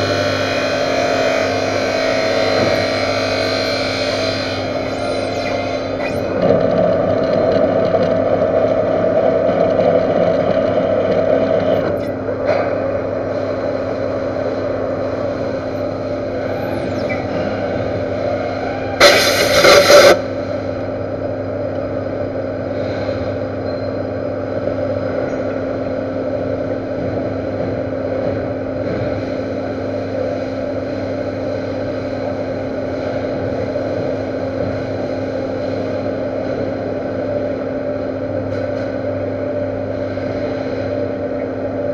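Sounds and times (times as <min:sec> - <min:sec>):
metal lathe humming: 0:00.0 - 0:20.3
loud burst of noise: 0:00.0 - 0:21.6.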